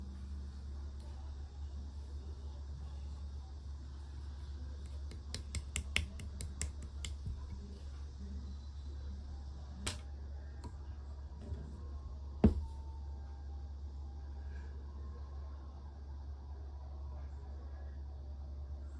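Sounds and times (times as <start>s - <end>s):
steady low hum: 0.0s - 18.9s
slime clicking pops: 5.1s - 7.4s.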